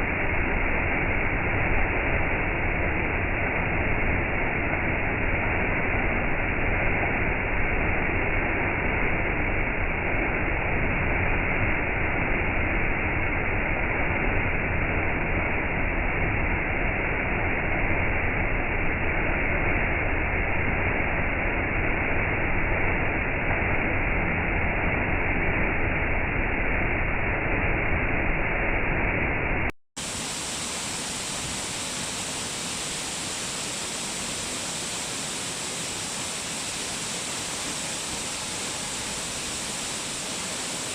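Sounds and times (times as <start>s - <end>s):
waterfall rushing: 30.0s - 40.9s.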